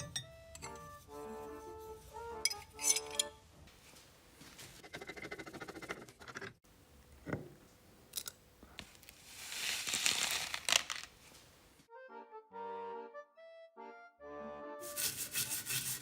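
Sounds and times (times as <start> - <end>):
music: 0.0 - 3.6, 11.9 - 16.0.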